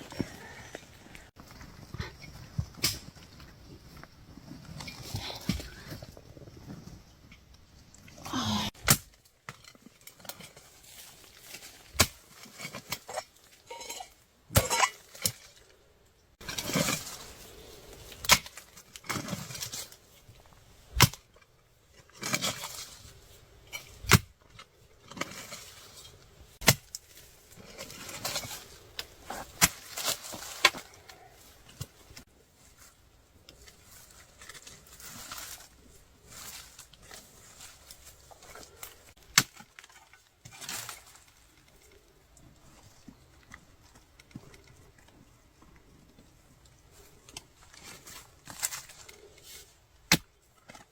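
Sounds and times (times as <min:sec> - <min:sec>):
earth rustling and scraping: 0:00.0 - 0:50.9
digging tool striking soil and stones: 0:02.2 - 0:03.4, 0:08.6 - 0:15.6, 0:18.0 - 0:20.0, 0:20.8 - 0:32.9, 0:33.5 - 0:41.4, 0:47.2 - 0:50.9.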